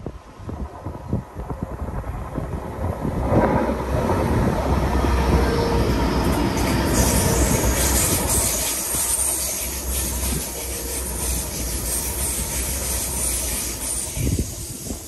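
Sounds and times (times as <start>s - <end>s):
train passing close by: 0.0s - 15.0s.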